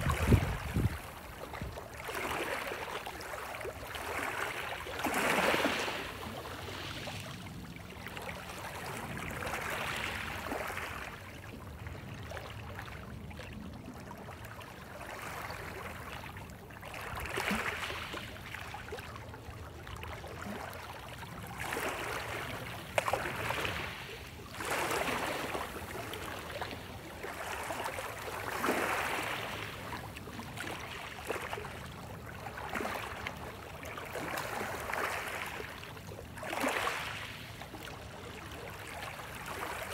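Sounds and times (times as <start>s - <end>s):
waves washing onto shore: 0.0s - 11.8s, 20.7s - 39.9s
low rumble of surf: 0.0s - 39.9s.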